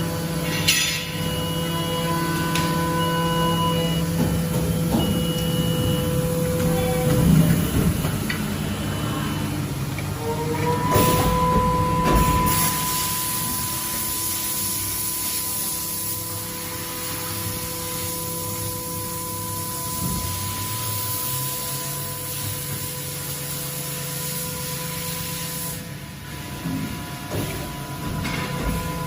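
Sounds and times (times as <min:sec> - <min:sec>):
milling machine spindle whine: 0:08.4 - 0:23.0
coolant spraying hiss: 0:12.5 - 0:18.2.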